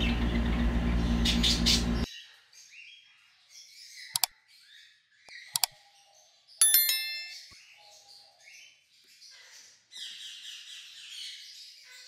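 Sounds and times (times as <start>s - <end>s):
small birds chirping: 0.0s - 12.0s
sharp clicks: 5.4s - 5.7s.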